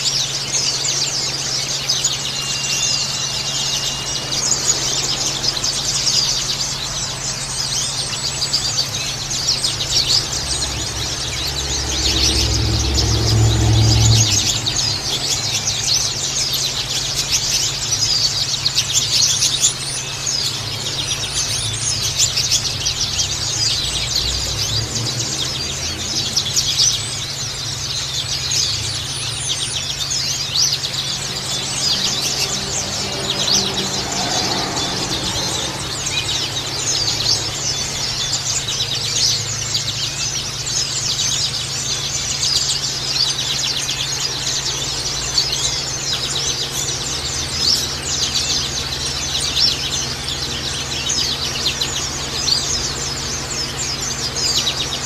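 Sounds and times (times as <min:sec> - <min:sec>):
flock of birds chirping: 0:00.0 - 0:55.0
steady low hum: 0:03.0 - 0:39.8.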